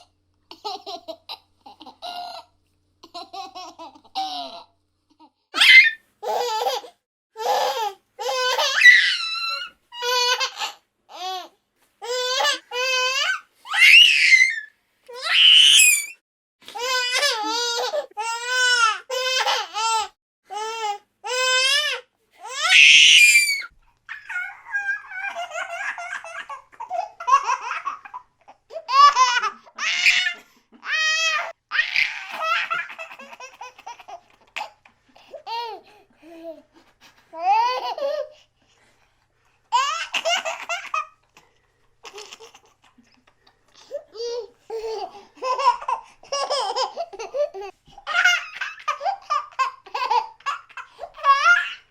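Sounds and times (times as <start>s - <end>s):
baby laughing and squealing: 5.6s - 16.2s, 16.8s - 20.0s, 21.3s - 34.8s, 39.7s - 41.2s, 44.2s - 51.9s.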